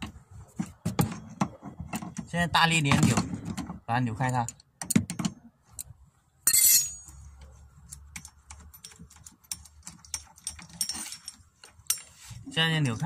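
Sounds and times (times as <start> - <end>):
metal clicks and taps: 7.0 - 12.1.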